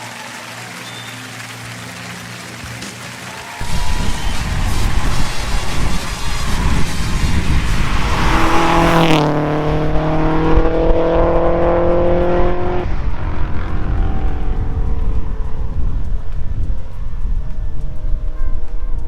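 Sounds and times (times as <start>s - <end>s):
low road rumble: 1.1s - 19.0s
rushing hiss: 3.6s - 8.8s
car engine accelerating: 3.6s - 18.1s.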